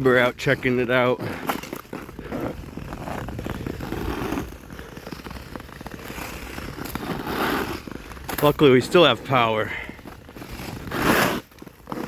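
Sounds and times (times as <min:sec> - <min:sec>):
ice skate blades scraping ice: 0:00.0 - 0:12.0.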